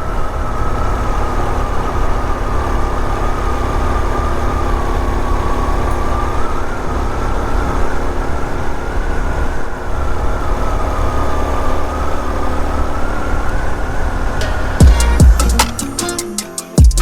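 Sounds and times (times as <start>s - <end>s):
motorbike engine running: 14.4s - 16.2s.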